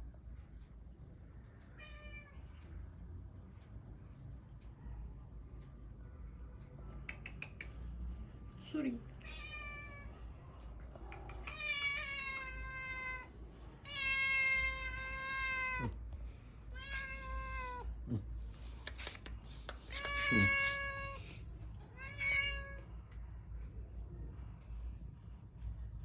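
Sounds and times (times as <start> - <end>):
cat meowing: 1.8 - 2.4, 9.2 - 10.1, 11.1 - 16.0, 16.7 - 18.0, 19.9 - 21.2, 21.9 - 22.9.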